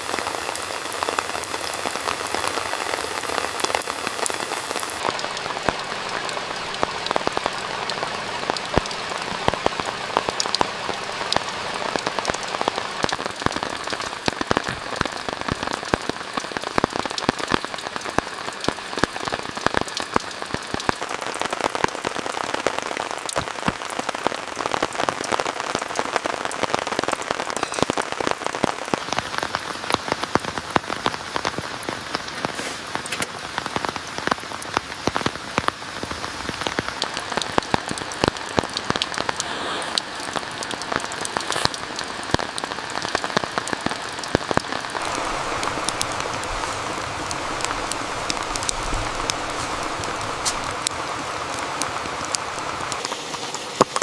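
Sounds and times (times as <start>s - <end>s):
rain drops pattering: 0.0s - 54.0s
steady rushing sound: 45.0s - 51.3s.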